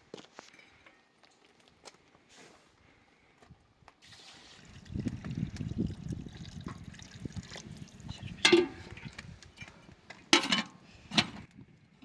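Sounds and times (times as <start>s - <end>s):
water splashing and trickling: 4.0s - 9.8s.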